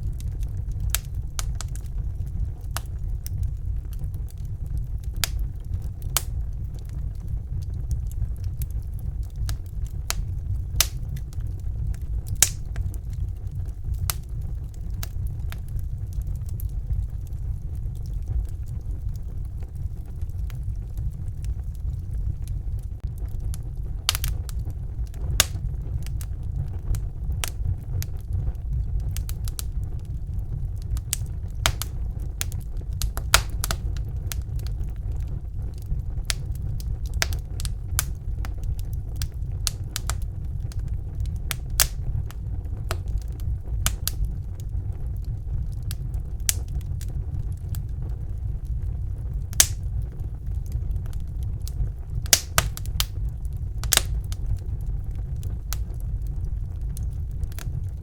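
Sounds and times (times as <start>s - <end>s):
fire crackling and popping: 0.0s - 58.0s
fire flames rumbling: 0.0s - 58.0s.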